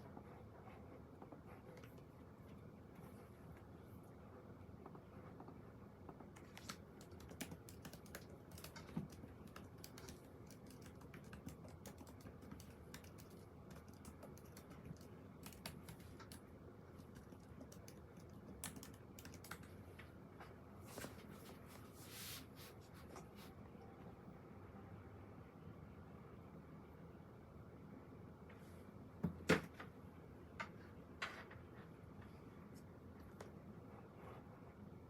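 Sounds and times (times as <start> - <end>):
typing on keyboard: 6.2 - 19.8.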